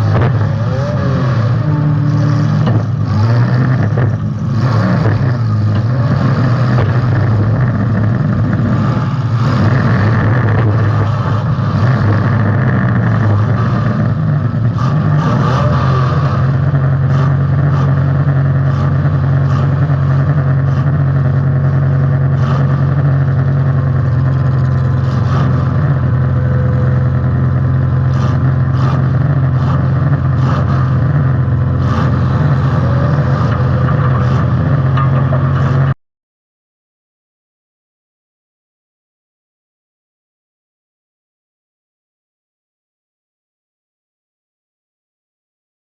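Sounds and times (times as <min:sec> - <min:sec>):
car engine running loud: 0:00.0 - 0:36.0.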